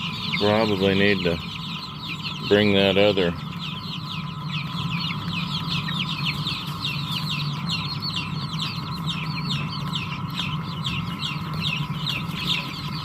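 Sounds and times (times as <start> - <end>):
chicks peeping: 0.0 - 13.0
steady hum: 0.0 - 13.0.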